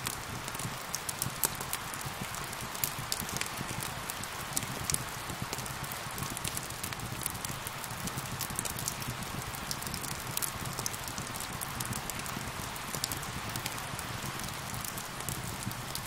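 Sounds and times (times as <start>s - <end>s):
fire crackling and popping: 0.0s - 16.0s
steady rain: 0.0s - 16.0s.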